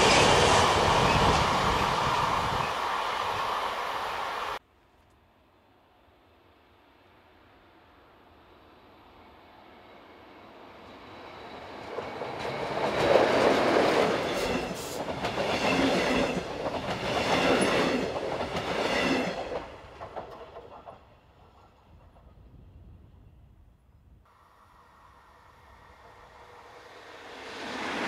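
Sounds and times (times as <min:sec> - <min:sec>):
train passing on rails: 0:00.0 - 0:04.6, 0:05.7 - 0:23.5, 0:24.3 - 0:28.0
train coaches clattering: 0:11.0 - 0:22.4.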